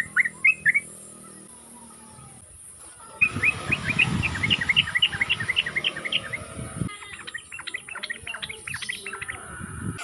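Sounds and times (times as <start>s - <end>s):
bird chirping song: 0.0s - 10.0s.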